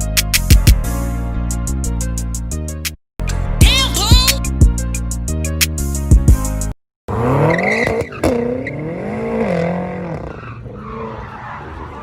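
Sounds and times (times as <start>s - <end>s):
hip-hop music with heavy bass: 0.0s - 6.7s
car engine revving: 7.1s - 12.0s
tyres skidding: 7.1s - 12.0s.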